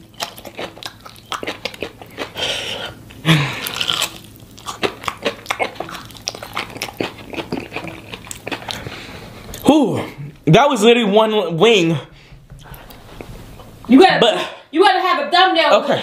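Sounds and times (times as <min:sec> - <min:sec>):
person chewing crunchy chicken: 0:00.0 - 0:09.7.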